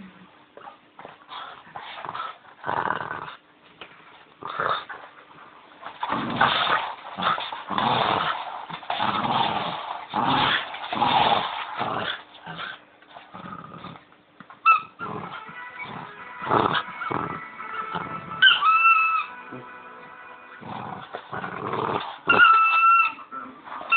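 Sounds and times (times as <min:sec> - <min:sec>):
dog growling in play: 0:01.0 - 0:03.4, 0:04.4 - 0:05.0, 0:05.9 - 0:14.1, 0:14.7 - 0:17.4, 0:20.6 - 0:23.9
squeaky toy squeaks: 0:18.4 - 0:19.4, 0:22.3 - 0:23.3.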